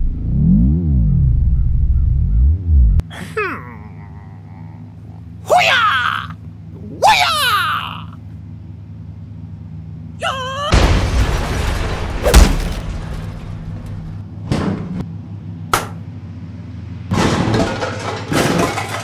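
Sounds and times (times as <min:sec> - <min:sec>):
low steady hum: 0:00.0 - 0:17.1
warbling whistle-like tone: 0:00.4 - 0:03.0
heavy thuds and crashes: 0:10.8 - 0:15.0.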